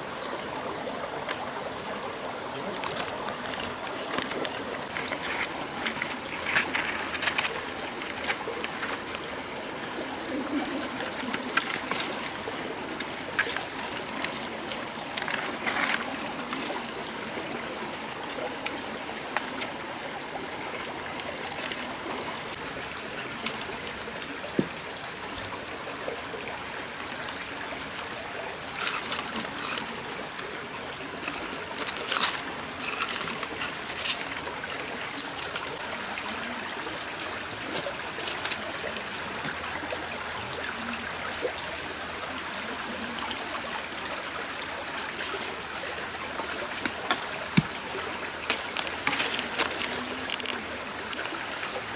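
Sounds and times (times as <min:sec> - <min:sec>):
stream water trickling: 0:00.0 - 0:51.9.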